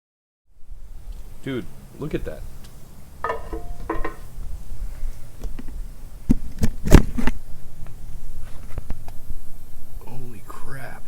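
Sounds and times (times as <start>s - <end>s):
tools clicking and knocking: 3.2s - 4.3s
metal clank: 3.2s - 4.4s.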